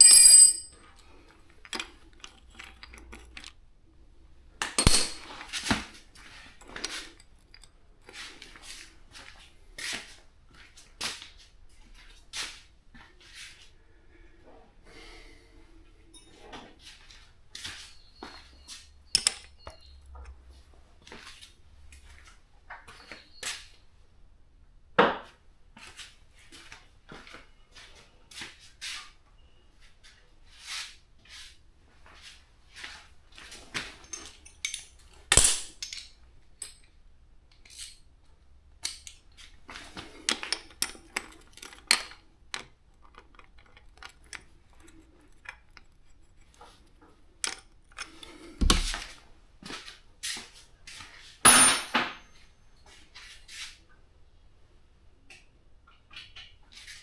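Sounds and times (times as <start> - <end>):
metal tools clinking and clanking: 0.0 - 0.8, 4.8 - 5.5, 33.9 - 36.9, 51.5 - 52.4.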